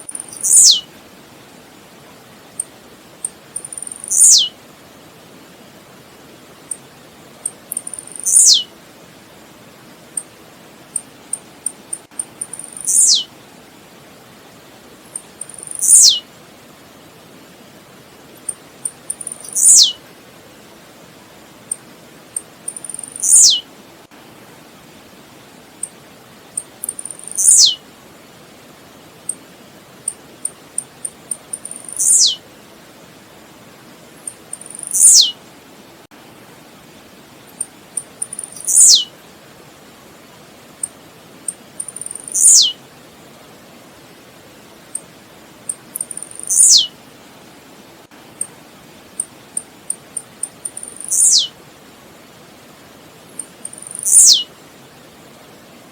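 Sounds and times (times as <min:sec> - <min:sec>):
bird song of high ticks: 0:00.0 - 0:00.9, 0:02.5 - 0:04.6, 0:06.6 - 0:08.7, 0:10.1 - 0:13.3, 0:15.1 - 0:16.2, 0:18.4 - 0:20.0, 0:21.7 - 0:23.6, 0:25.8 - 0:27.8, 0:30.0 - 0:32.4, 0:34.2 - 0:35.4, 0:37.5 - 0:39.1, 0:40.8 - 0:42.8, 0:45.7 - 0:46.9, 0:49.2 - 0:51.5, 0:53.3 - 0:54.5
faint steady hiss: 0:00.0 - 0:55.9
bird song sliding down: 0:00.1 - 0:00.8, 0:03.6 - 0:04.5, 0:07.8 - 0:08.6, 0:12.5 - 0:13.3, 0:15.5 - 0:16.2, 0:19.2 - 0:19.9, 0:22.8 - 0:23.6, 0:27.0 - 0:27.8, 0:31.6 - 0:32.4, 0:34.5 - 0:35.3, 0:38.3 - 0:39.1, 0:42.0 - 0:42.8, 0:46.2 - 0:46.9, 0:50.7 - 0:51.5, 0:53.7 - 0:54.4
faint high ticks: 0:07.4 - 0:08.4.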